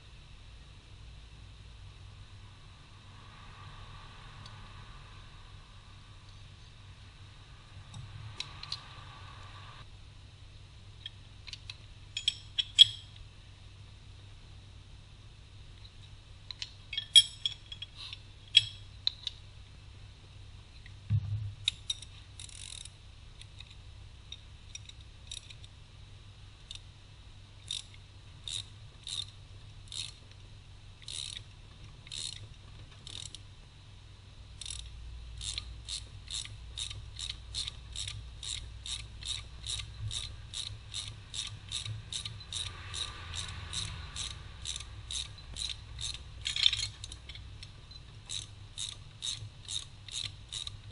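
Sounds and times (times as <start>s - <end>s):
ratchet wrench clicking: 11.0s - 13.2s, 21.6s - 23.7s, 24.3s - 25.7s, 27.6s - 30.2s, 31.0s - 33.4s, 34.6s - 50.9s.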